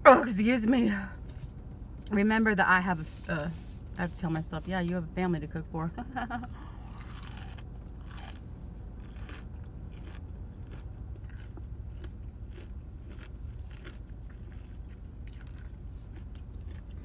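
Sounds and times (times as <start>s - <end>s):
person chewing crunchy food: 6.3s - 17.0s.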